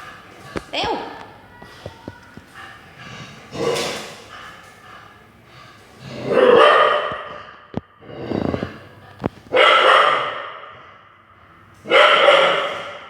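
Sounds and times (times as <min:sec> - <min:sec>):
dog barking: 0:06.3 - 0:07.3, 0:09.5 - 0:10.7, 0:11.9 - 0:13.0.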